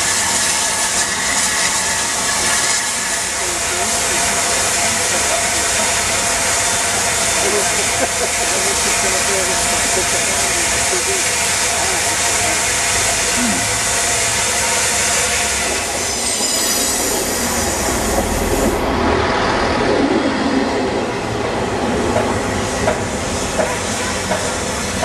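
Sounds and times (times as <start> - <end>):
steam hissing: 0.0 - 20.6, 21.8 - 25.0
train rumbling: 0.0 - 25.0
wheels squealing: 15.6 - 20.8
train wheels knocking on rail joints: 22.0 - 25.0.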